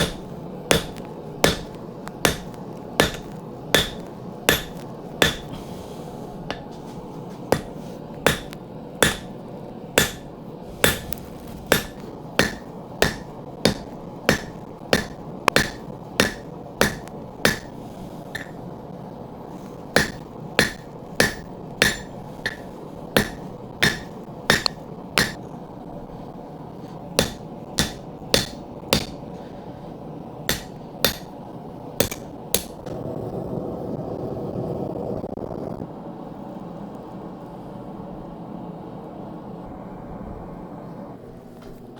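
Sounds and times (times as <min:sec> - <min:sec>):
hammer striking steel on anvil: 0:00.0 - 0:05.7, 0:06.5 - 0:06.8, 0:07.5 - 0:09.4, 0:10.0 - 0:18.6, 0:20.0 - 0:25.4, 0:27.2 - 0:29.3, 0:30.5 - 0:31.4, 0:32.0 - 0:32.9
steady low hum: 0:00.0 - 0:41.9.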